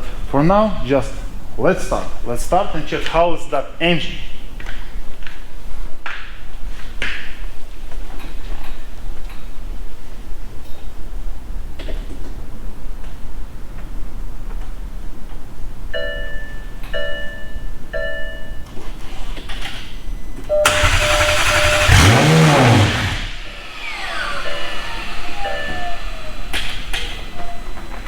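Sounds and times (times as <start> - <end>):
car engine revving: 20.6 - 28.0
falling whine: 20.6 - 28.0
starter cranking: 20.6 - 28.0.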